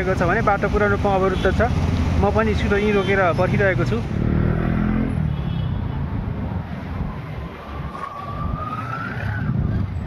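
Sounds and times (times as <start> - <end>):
traffic engines rumbling: 0.0 - 10.0
rising siren-like tone: 6.8 - 10.0.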